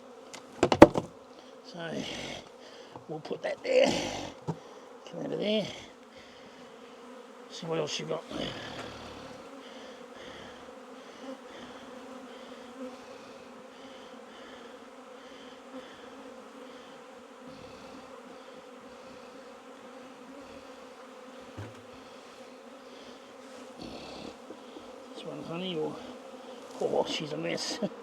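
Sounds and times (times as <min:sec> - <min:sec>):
bees buzzing: 0:00.0 - 0:28.0
light knocks: 0:21.6 - 0:21.9.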